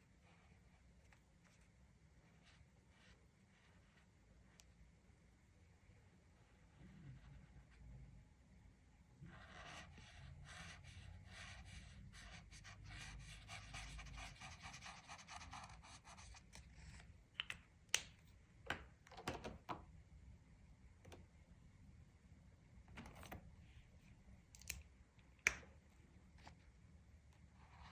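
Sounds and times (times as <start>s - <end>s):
scratchy coloring strokes on paper: 9.2s - 16.4s.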